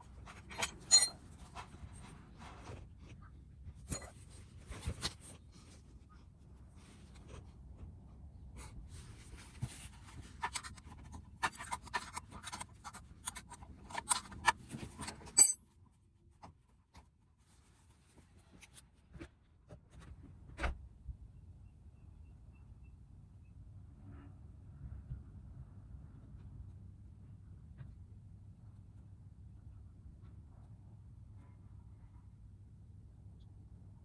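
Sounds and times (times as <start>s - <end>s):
hand tools clicking and scraping: 0.0s - 1.8s, 10.2s - 15.6s
metal clatter: 0.2s - 1.7s.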